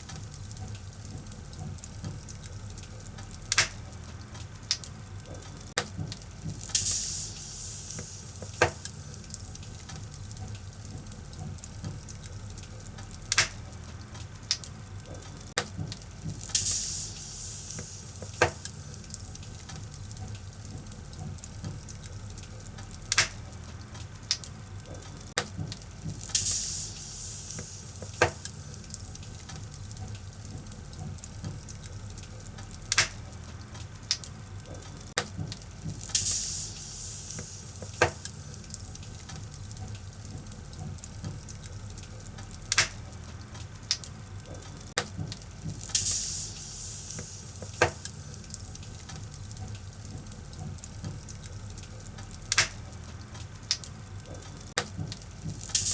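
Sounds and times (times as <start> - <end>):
wood fire crackling: 0.0 - 55.9
fire hissing surge: 6.5 - 9.9, 16.3 - 19.7, 26.1 - 29.5, 35.9 - 39.2, 45.7 - 48.7, 55.5 - 55.9.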